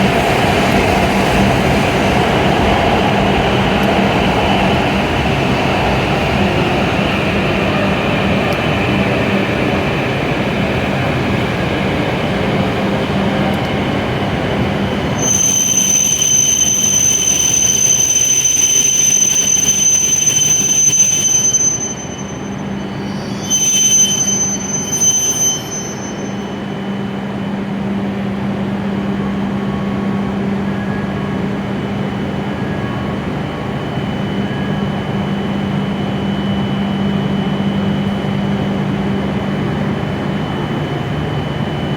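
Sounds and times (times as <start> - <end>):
train low hum: 0.0 - 41.9
high-pitched whine: 13.3 - 41.9.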